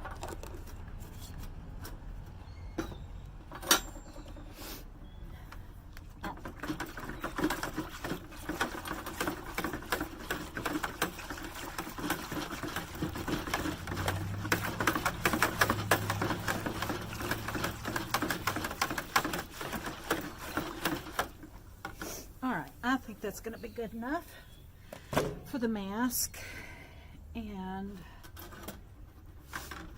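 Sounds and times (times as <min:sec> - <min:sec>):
utensil scraping container sides: 0:06.7 - 0:23.8.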